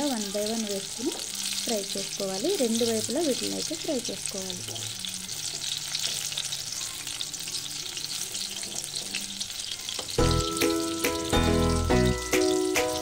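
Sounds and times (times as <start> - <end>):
meat deep-frying in oil: 0.0 - 13.0
background music: 10.1 - 13.0.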